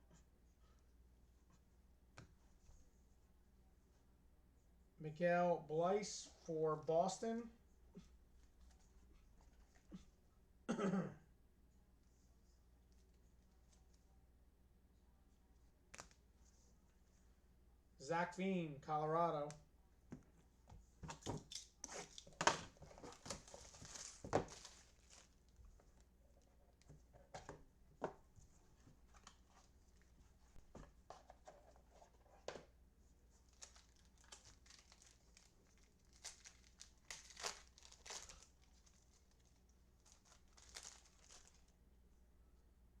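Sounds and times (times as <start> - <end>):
packaging tearing and crinkling: 33.5 - 39.4, 40.0 - 41.6.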